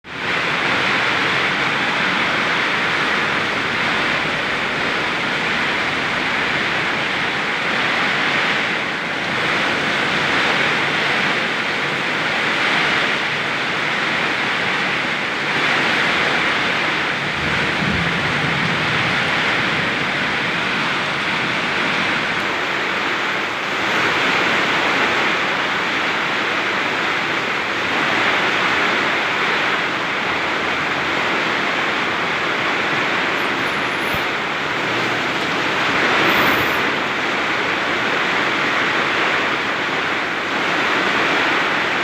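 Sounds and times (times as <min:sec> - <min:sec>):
heavy rain pouring: 0:00.0 - 0:42.0
strong wind: 0:00.0 - 0:42.0.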